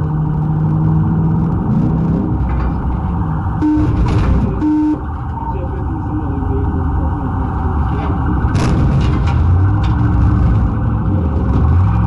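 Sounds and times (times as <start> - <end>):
engine and road rumble: 0.0 - 12.0
short steady tones: 3.6 - 5.1.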